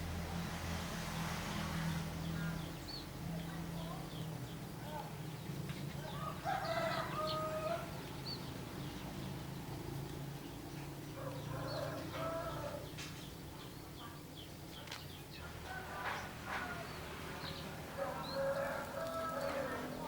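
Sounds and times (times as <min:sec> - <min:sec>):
small birds chirping: 0:02.1 - 0:20.0
rooster crowing: 0:06.1 - 0:08.0, 0:11.2 - 0:12.9, 0:15.6 - 0:17.1, 0:18.0 - 0:20.0.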